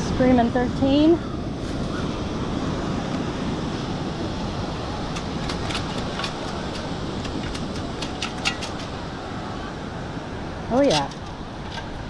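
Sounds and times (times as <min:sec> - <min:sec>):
surf hiss: 0:00.0 - 0:12.0
wind: 0:00.0 - 0:12.0
sand scoop rattling: 0:04.9 - 0:09.2, 0:10.7 - 0:12.0.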